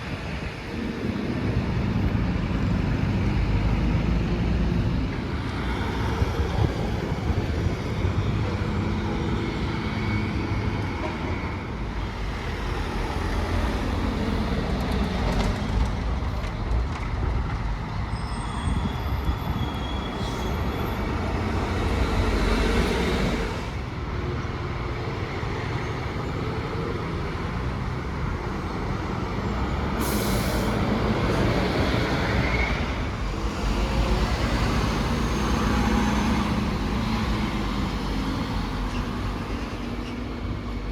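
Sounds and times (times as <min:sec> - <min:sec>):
bus engine and tyres rumbling: 0:00.0 - 0:40.9
city traffic: 0:00.0 - 0:40.9
air brakes hissing: 0:30.0 - 0:31.0.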